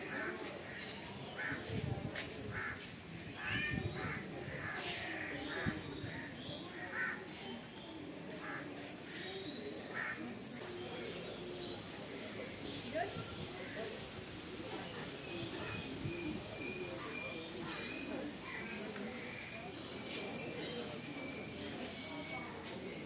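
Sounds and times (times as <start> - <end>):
birds calling: 0.1 - 11.9.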